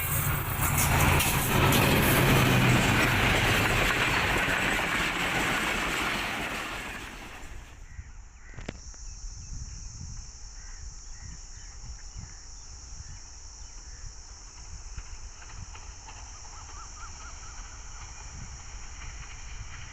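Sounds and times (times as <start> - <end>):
passenger train passing: 0.0 - 7.9, 14.4 - 19.9.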